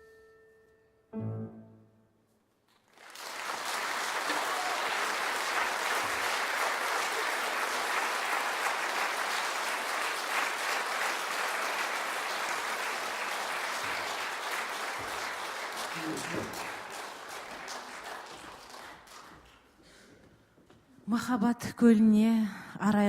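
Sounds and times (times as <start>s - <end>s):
audience applauding: 2.8s - 20.0s.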